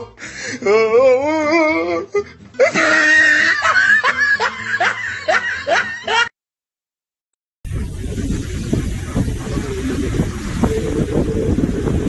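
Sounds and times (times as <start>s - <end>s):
person crying out: 0.0s - 5.2s
people laughing and shouting: 2.6s - 6.3s.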